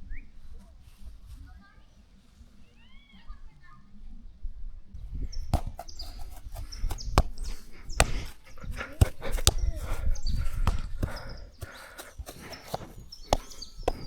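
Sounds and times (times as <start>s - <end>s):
short high bird calls: 11.1s - 14.0s.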